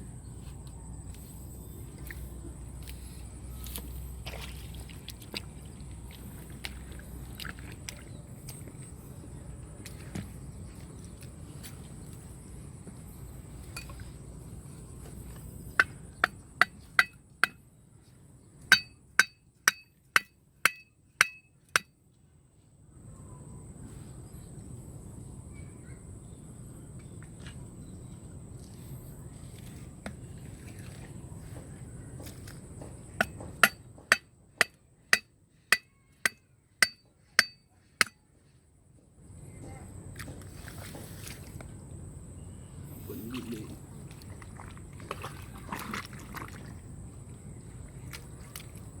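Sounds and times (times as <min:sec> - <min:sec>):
hard object knocking with ringing: 0:15.8 - 0:17.6, 0:18.7 - 0:21.9, 0:33.2 - 0:38.2.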